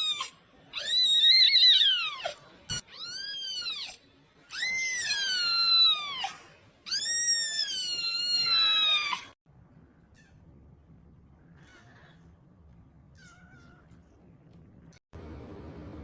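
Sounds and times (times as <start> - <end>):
kitten meowing: 0.0 - 9.3.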